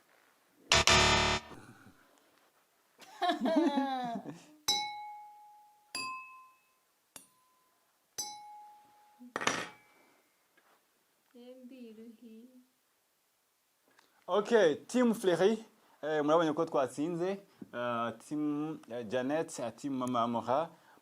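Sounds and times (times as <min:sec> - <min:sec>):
drinking glasses clinking: 0:08.2 - 0:08.7.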